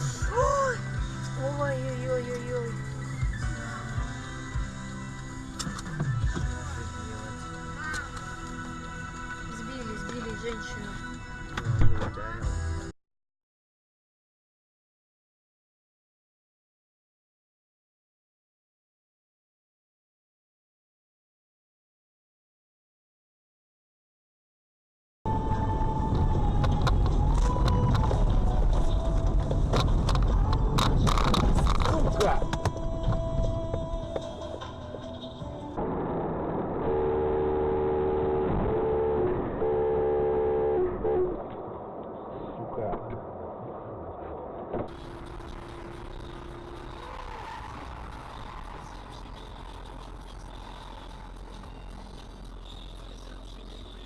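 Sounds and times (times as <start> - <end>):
motor traffic and road noise: 0.0 - 12.4, 25.3 - 54.0
car rumble: 0.0 - 12.9, 25.3 - 54.0.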